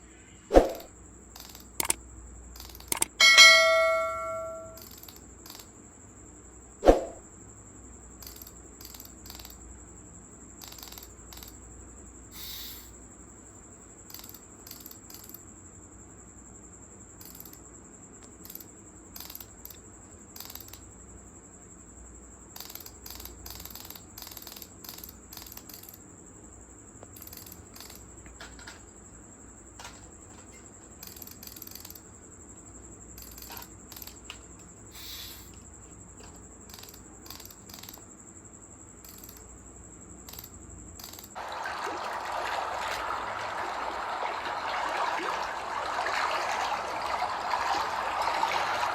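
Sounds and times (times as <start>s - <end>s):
thin high-pitched tone: 3.2s - 4.8s
light clicks and clinks: 29.8s - 32.1s, 33.1s - 34.7s
rushing water: 41.4s - 48.9s.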